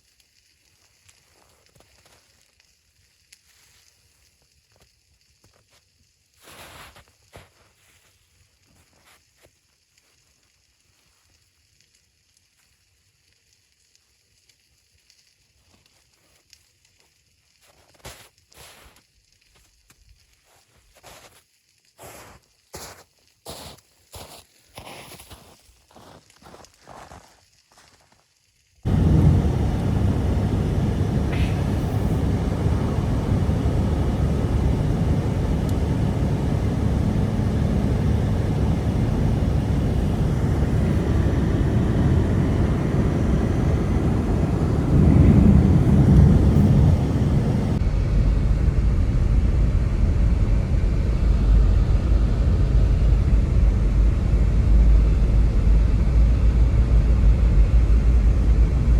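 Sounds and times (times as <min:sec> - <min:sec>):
strong blizzard wind: 0:28.9 - 0:58.9.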